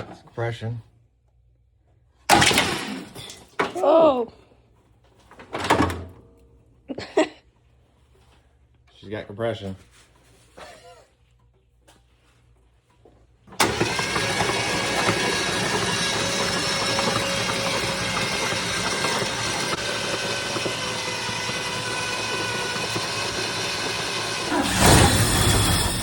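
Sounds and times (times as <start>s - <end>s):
engine cranked by starter motor: 13.5s - 26.0s.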